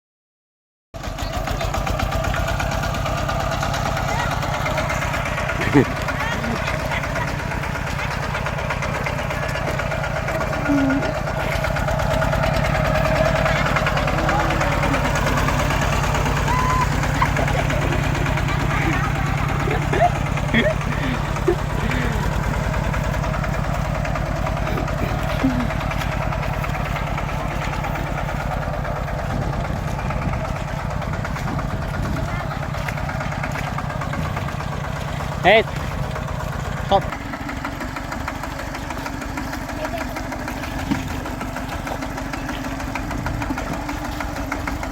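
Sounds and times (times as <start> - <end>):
tractor engine running: 1.0 - 44.9.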